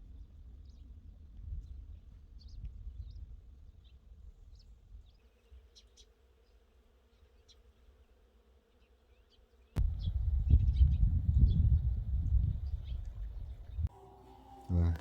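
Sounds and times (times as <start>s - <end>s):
insect buzzing: 5.2s - 9.9s
bird chirps: 12.8s - 15.0s.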